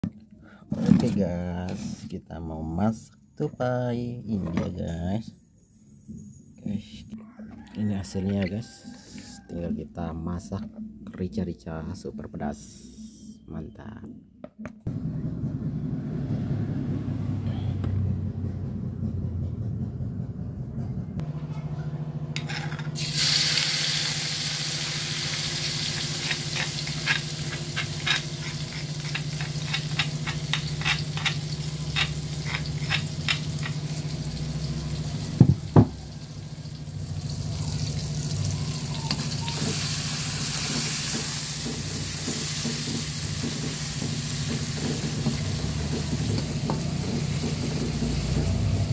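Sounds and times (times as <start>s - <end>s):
food sizzling in a pan: 23.0s - 48.1s
spatula scraping a pan: 25.9s - 33.8s.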